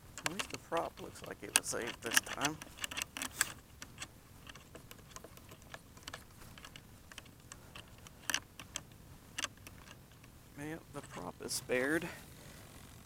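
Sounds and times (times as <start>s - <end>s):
light clicks and taps: 0.1s - 10.4s.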